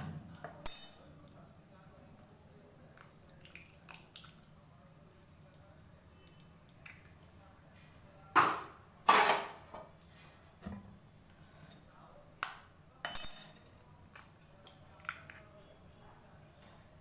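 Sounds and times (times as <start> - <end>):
dishes clinking and clattering: 8.4 - 10.8, 13.1 - 15.3.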